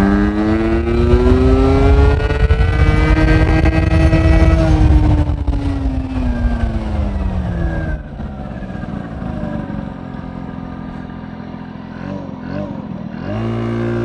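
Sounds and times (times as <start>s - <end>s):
wind rumble on microphone: 0.0s - 11.1s
scooter engine running: 0.0s - 14.0s.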